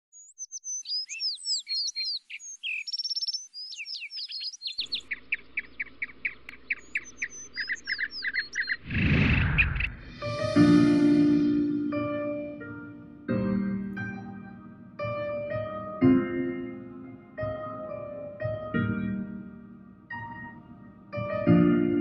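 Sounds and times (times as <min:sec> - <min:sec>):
songbirds chirping and whistling: 0:00.1 - 0:10.3
loud rush of noise: 0:08.8 - 0:11.7.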